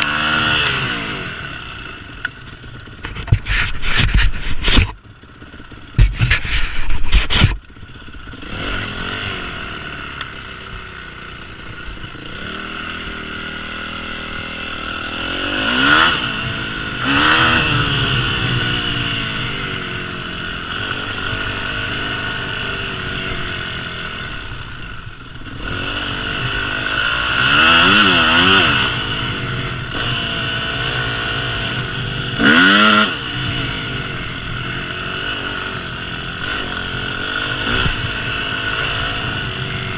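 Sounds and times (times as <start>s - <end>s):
dirt bike engine revving: 0.0s - 39.9s
loud rough bursts of noise: 11.4s - 39.9s.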